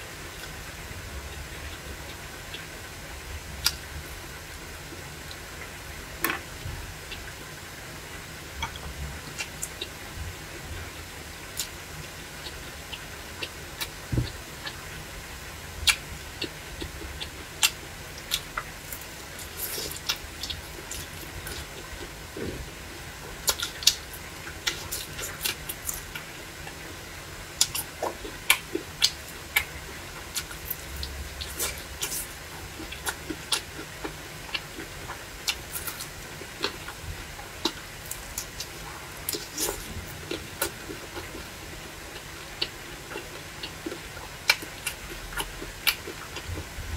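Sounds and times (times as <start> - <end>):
steady low hiss: 0.0 - 46.9
chewing and mouth smacks: 23.4 - 24.0, 30.3 - 33.9.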